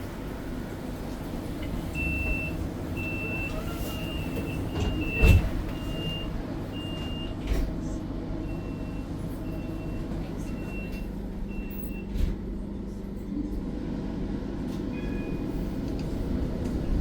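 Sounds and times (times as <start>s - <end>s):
tram rumbling: 0.0s - 17.0s.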